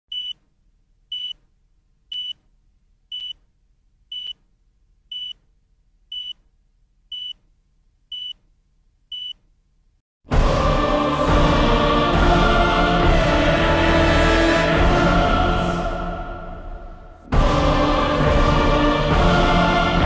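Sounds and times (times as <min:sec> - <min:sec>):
short high beeps: 0:01.1 - 0:01.4.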